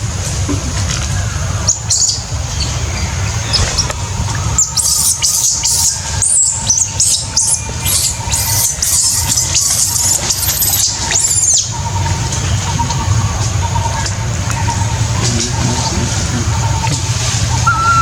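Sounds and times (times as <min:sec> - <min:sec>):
low rumble: 0:00.0 - 0:08.4
baby monkey squealing: 0:03.2 - 0:12.8.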